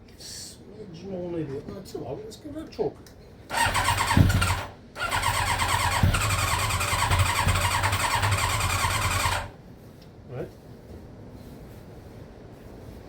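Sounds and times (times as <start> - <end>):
engine cranking: 3.5 - 9.6.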